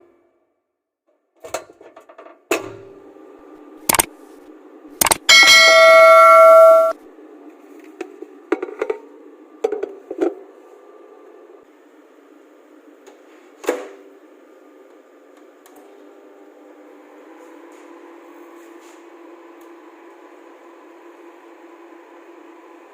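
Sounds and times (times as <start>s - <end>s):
microwave oven beeping: 5.0s - 7.0s.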